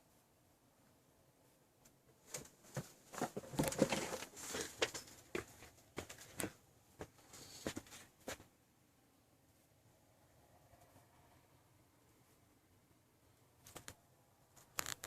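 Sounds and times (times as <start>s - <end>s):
rustling: 1.8s - 8.5s.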